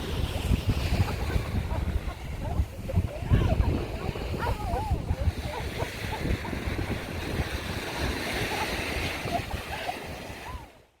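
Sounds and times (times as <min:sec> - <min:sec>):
wind buffeting microphone: 0:00.0 - 0:10.8
sea waves washing in: 0:00.0 - 0:11.0
faint voices: 0:01.1 - 0:06.9.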